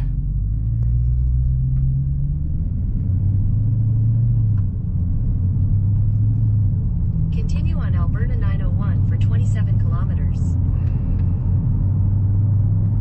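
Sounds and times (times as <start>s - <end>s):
car engine drone: 0.0s - 13.0s
road noise inside car: 0.0s - 13.0s.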